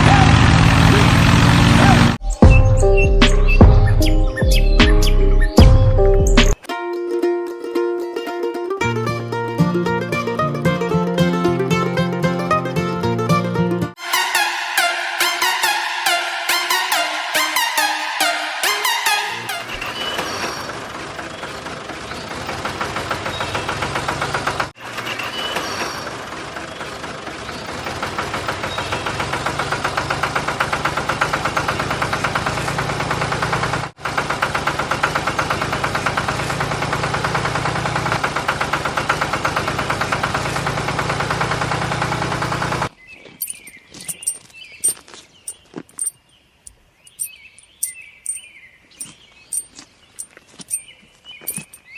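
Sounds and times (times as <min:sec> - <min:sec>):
tractor engine chugging: 0:14.0 - 0:42.9.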